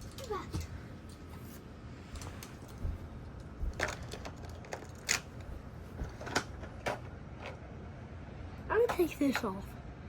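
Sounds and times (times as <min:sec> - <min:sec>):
toy trucks clicking and clattering: 0:00.0 - 0:01.2, 0:03.7 - 0:07.6.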